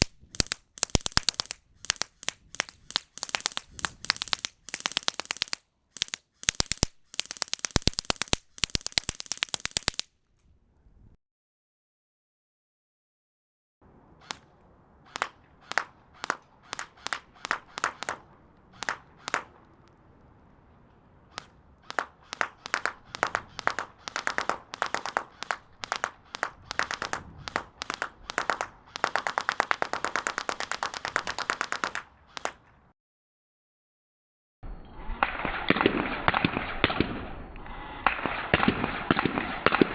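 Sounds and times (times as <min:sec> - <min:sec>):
bubble wrap popping: 0:00.0 - 0:10.1, 0:21.4 - 0:32.6.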